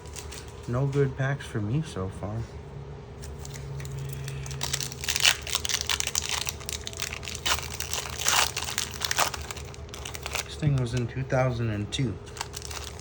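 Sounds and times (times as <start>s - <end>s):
foil wrapper crinkling: 0.0s - 0.8s, 3.2s - 11.1s, 12.2s - 13.0s.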